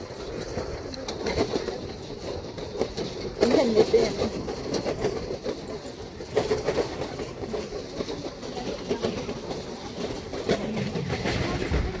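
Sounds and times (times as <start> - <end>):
carriages clicking and clattering: 0.0 - 12.0
train rumbling: 0.0 - 12.0.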